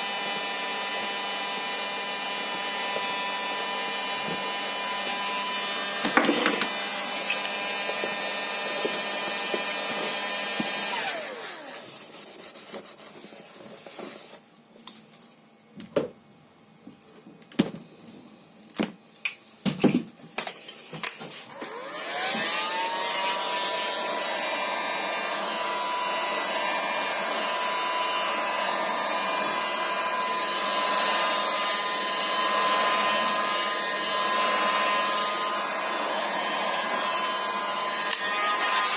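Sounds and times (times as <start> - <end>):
electric motor whining: 0.0 - 11.8, 21.5 - 38.9.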